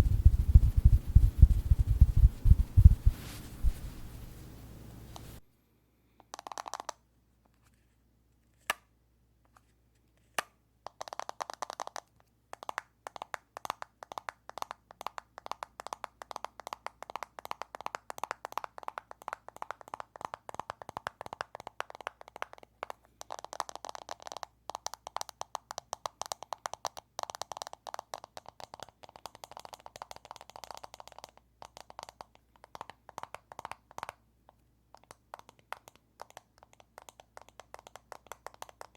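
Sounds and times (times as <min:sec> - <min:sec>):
fingers tapping on plastic case: 0:10.9 - 0:34.2, 0:35.0 - 0:38.9.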